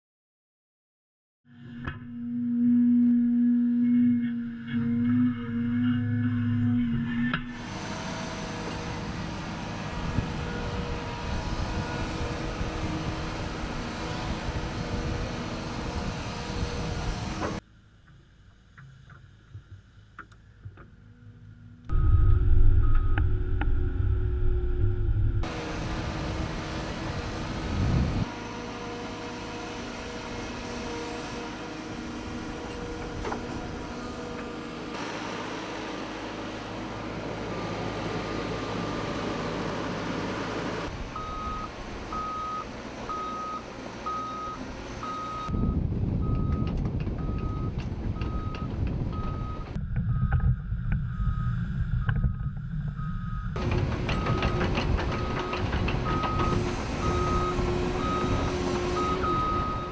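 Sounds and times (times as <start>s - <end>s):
excavator diesel engine running: 3.8s - 17.6s, 21.9s - 59.9s
backup alarm beeping: 21.9s - 23.5s, 41.2s - 50.5s, 51.1s - 59.9s.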